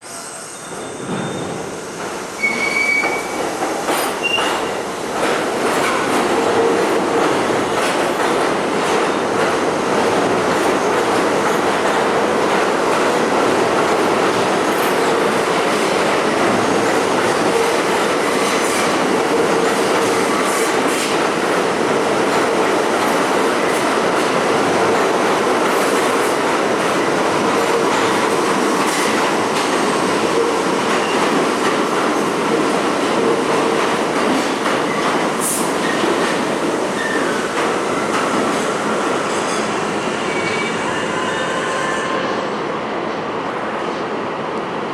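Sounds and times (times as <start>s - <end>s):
high wheel squeals: 0.1s - 1.7s, 2.4s - 3.4s
train wheels rumbling on rail: 0.1s - 44.9s.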